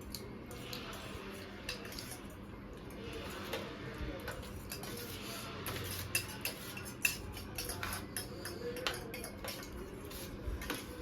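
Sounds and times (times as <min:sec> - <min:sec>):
spoon clinking on plate: 0:04.4 - 0:10.9.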